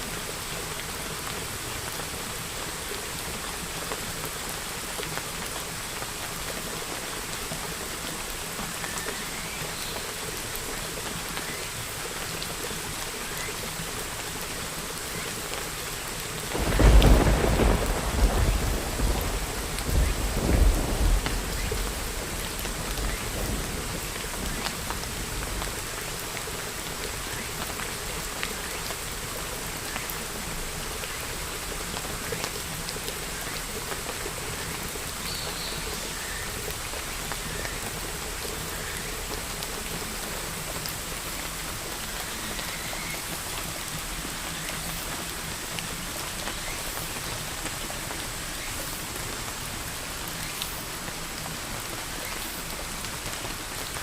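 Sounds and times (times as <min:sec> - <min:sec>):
steady rain falling: 0:00.0 - 0:54.0
thunder rumble: 0:16.5 - 0:24.7.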